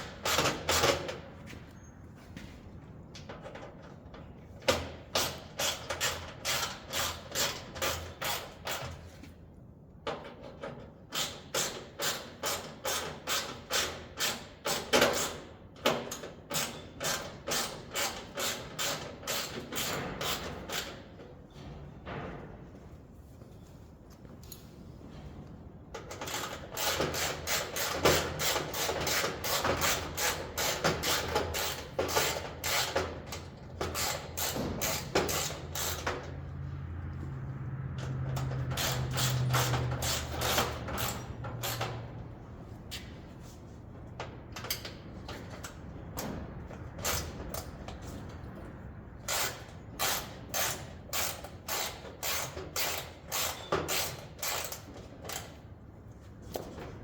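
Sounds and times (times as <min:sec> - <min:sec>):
hand ratchet clicking: 0:26.1 - 0:36.1, 0:49.3 - 0:55.6.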